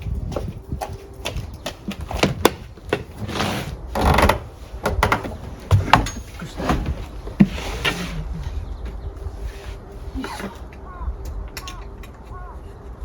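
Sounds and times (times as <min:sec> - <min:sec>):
knocks and clicks of gear: 0:04.0 - 0:07.5.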